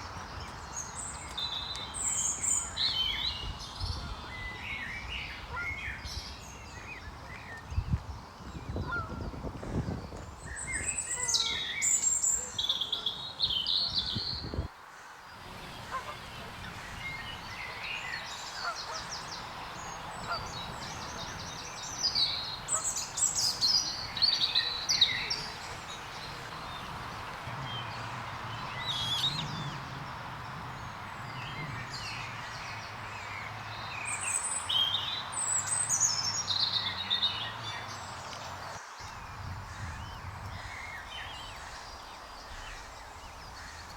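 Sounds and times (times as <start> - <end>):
small birds singing: 0.0 - 14.7, 15.3 - 43.9
outdoor background hiss: 10.3 - 43.9.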